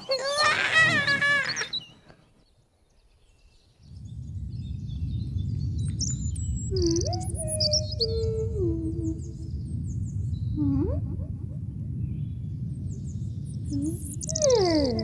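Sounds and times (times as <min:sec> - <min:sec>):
birds chirping and whistling: 0:00.0 - 0:10.6, 0:12.0 - 0:15.0
steady low rumble: 0:03.6 - 0:15.0.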